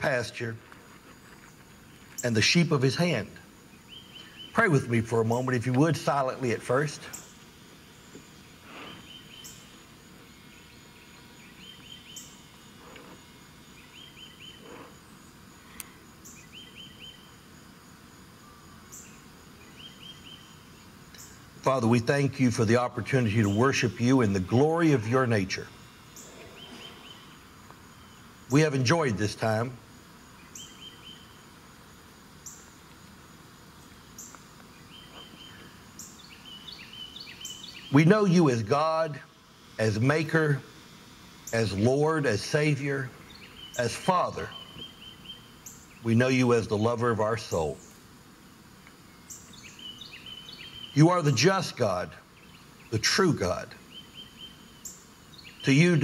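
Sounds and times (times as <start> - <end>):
faint outdoor background: 0.0 - 56.0
bird high chirp: 3.8 - 5.5, 8.8 - 9.7, 10.5 - 12.5, 13.8 - 14.8, 16.2 - 17.4, 18.5 - 20.6, 26.1 - 28.3, 30.4 - 31.4, 34.2 - 38.1, 43.0 - 46.1, 49.2 - 51.2
songbird singing high notes: 42.4 - 47.9, 49.2 - 51.4.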